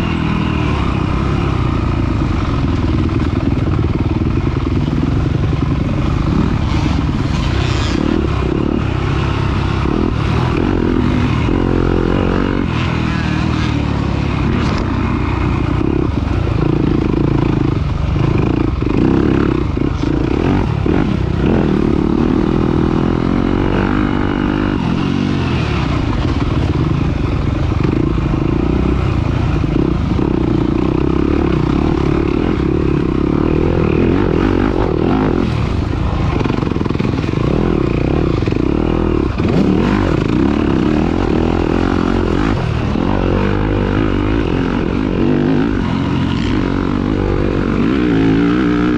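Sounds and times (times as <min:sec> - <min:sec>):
racing engine at high revs: 0:00.0 - 0:48.9
rough-terrain rattle: 0:00.0 - 0:48.9
wind: 0:00.0 - 0:48.9.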